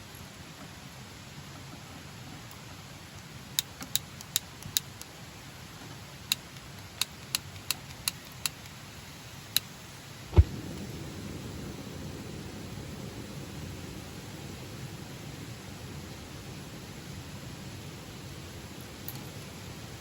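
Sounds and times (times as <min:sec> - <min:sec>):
low background hiss: 0:00.0 - 0:20.0
heavy thump: 0:10.3 - 0:10.7.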